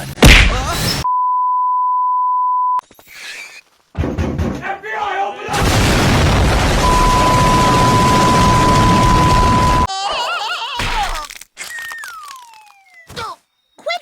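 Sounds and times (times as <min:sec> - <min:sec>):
high-pitched censor bleep: 0:01.1 - 0:02.8, 0:06.8 - 0:09.9.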